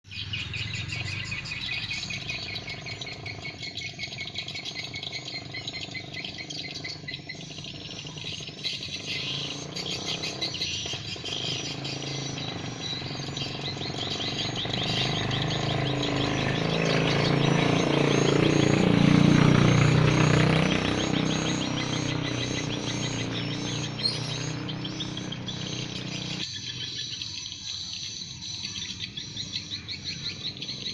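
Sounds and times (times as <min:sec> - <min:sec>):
swiftlets twittering: 0:01.8 - 0:26.4.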